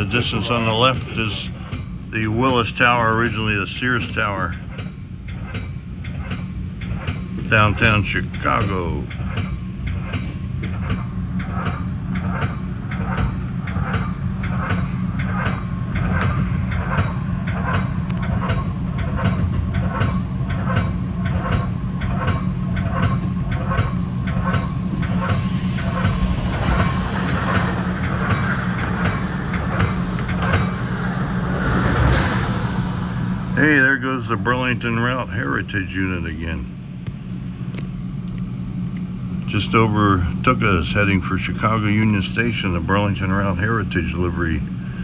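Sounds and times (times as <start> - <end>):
train rumbling: 0.0 - 37.0
passing train hiss: 30.6 - 34.4.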